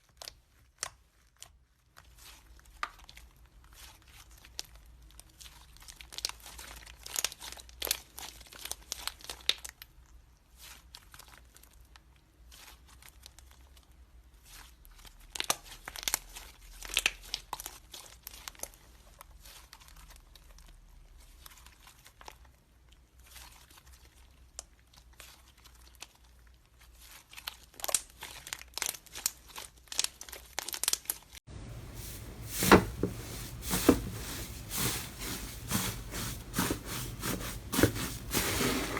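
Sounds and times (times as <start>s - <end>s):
slime crackling and popping: 15.3s - 18.8s, 24.7s - 31.4s.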